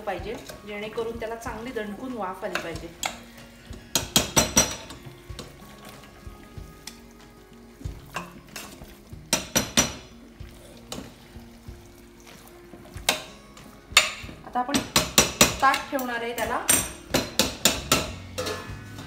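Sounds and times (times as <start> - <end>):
faint sizzle of oil: 0.0 - 14.7.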